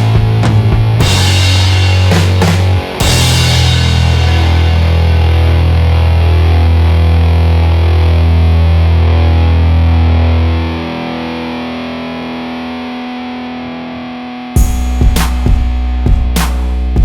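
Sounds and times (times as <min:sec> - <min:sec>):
distorted electric guitar chord: 0:00.0 - 0:17.0.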